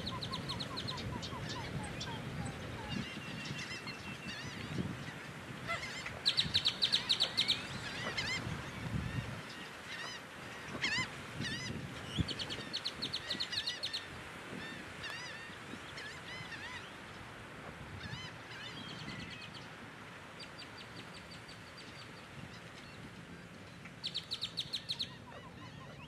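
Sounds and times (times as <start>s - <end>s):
birds chirping: 0.0s - 5.2s, 5.8s - 8.8s.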